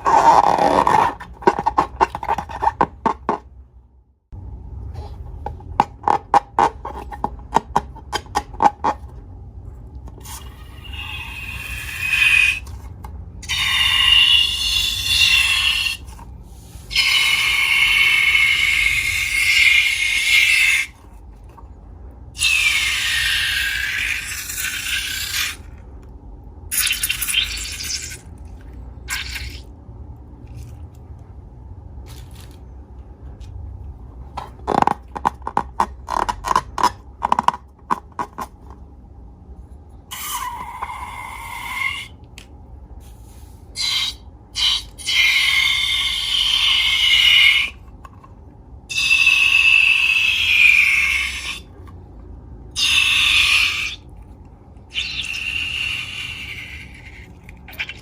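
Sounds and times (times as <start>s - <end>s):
rubber balloons squeaking: 0.0s - 3.0s.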